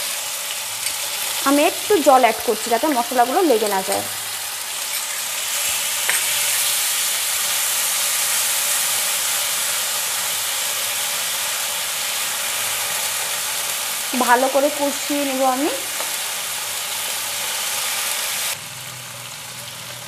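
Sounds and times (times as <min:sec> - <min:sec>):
masala sizzling in hot oil: 0:00.0 - 0:20.0
spatula stirring in a pan: 0:03.6 - 0:09.4.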